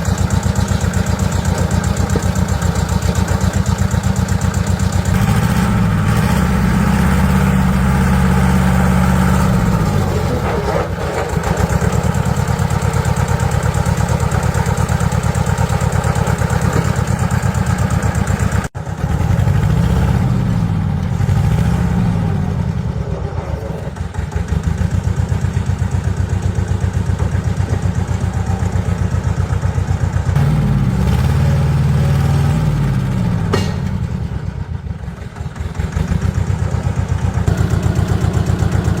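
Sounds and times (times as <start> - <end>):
atv engine revving: 0.0 - 39.0.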